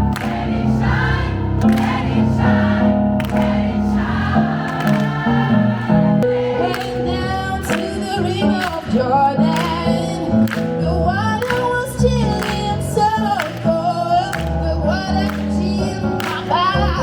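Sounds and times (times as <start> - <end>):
women's gospel choir singing: 0.0 - 10.4.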